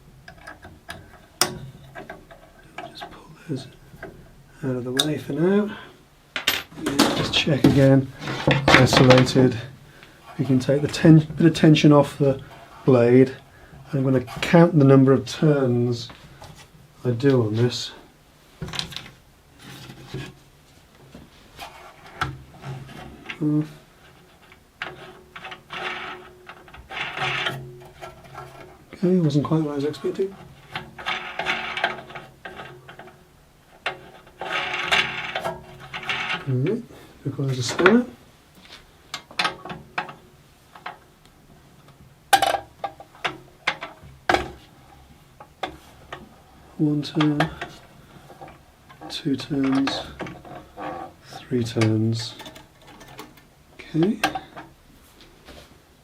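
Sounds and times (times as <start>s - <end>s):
metal scraping and rubbing: 6.4s - 13.4s, 21.4s - 38.8s, 43.1s - 54.6s.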